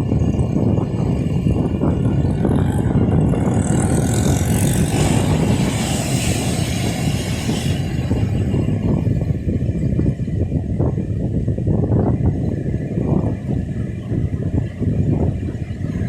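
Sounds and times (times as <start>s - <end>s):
surf rumble: 0.0s - 16.0s
traffic: 0.0s - 16.0s
hiss: 5.0s - 8.3s.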